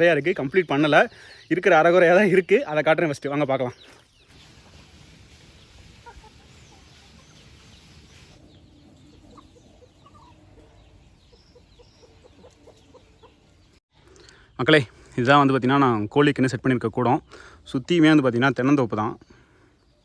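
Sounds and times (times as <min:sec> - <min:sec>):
chickens clucking: 0:03.8 - 0:14.2
background hiss: 0:04.0 - 0:09.3.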